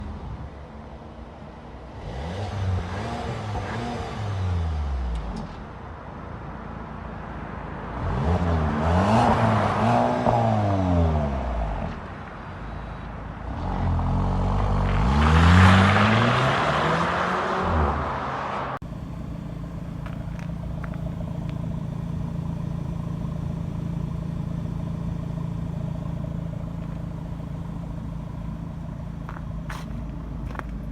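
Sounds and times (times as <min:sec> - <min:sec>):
car engine revving: 0:13.8 - 0:30.9
car engine idling: 0:18.8 - 0:30.9.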